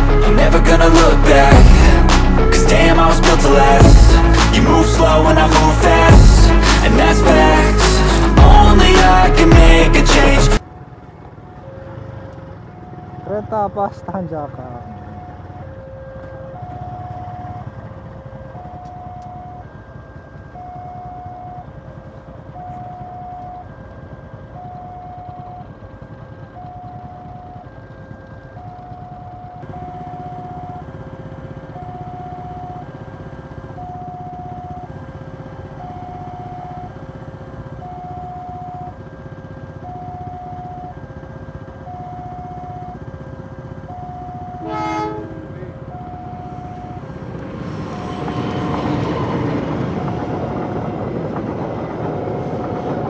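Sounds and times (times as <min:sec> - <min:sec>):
low rumble of engines: 0:00.0 - 0:53.0
level crossing two-tone alarm: 0:12.0 - 0:47.4.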